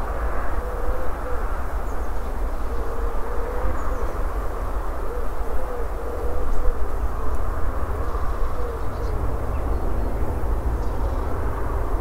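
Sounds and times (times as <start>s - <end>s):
bird cooing: 0.5s - 1.5s, 2.7s - 4.2s, 5.0s - 7.4s, 8.0s - 10.1s.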